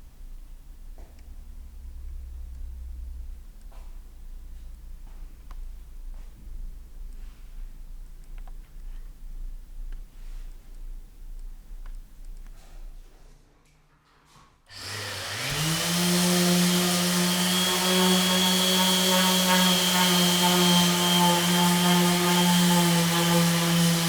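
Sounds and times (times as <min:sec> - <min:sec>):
power tool motor spinning: 0:14.7 - 0:24.0.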